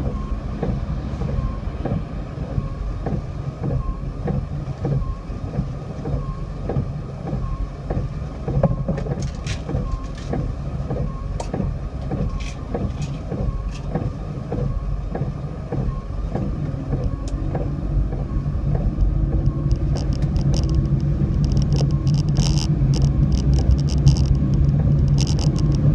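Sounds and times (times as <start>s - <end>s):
car engine and road noise: 0.0s - 25.9s
sharp clicks and taps: 6.1s - 25.9s.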